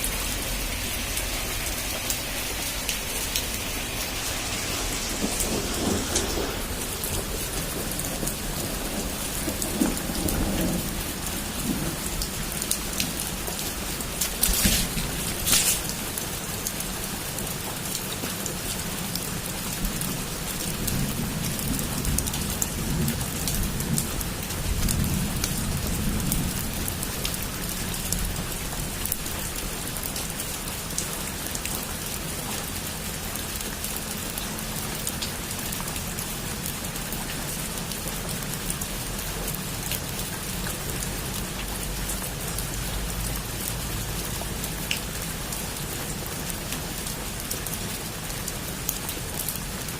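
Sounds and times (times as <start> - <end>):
low thunder rumble: 0.0 - 16.4
heavy rain on a roof: 0.0 - 49.9.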